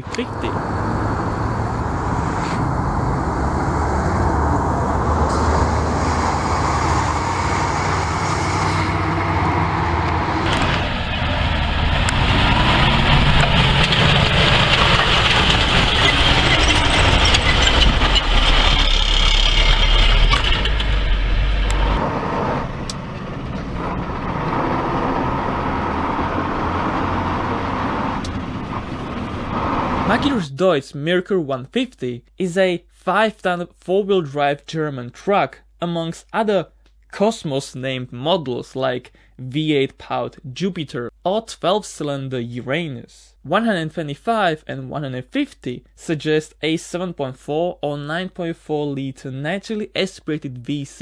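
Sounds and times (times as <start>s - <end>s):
truck diesel engine running: 0.0s - 30.4s.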